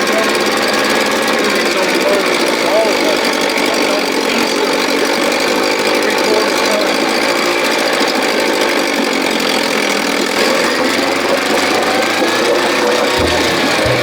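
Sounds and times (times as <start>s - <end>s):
outboard motor running: 8.8s - 14.0s.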